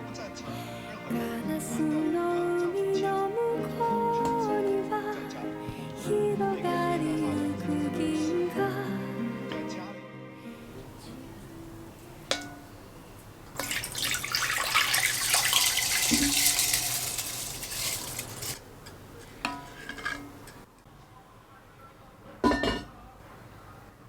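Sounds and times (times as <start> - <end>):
dishes clinking: 10.6 - 20.7, 22.4 - 23.1
running splashing water: 10.7 - 20.5.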